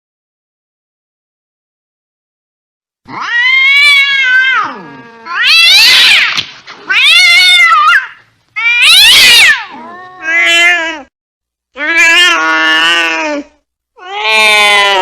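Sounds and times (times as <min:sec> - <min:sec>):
cat yowling: 0:03.1 - 0:11.1, 0:11.8 - 0:15.0.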